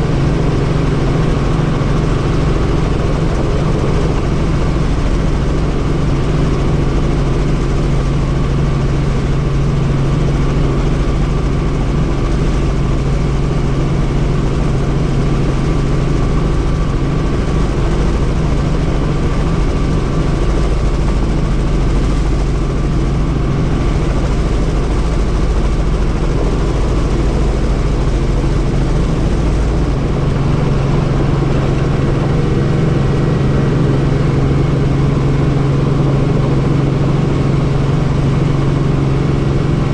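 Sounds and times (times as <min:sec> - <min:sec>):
helicopter rotor drone: 0:00.0 - 0:39.9.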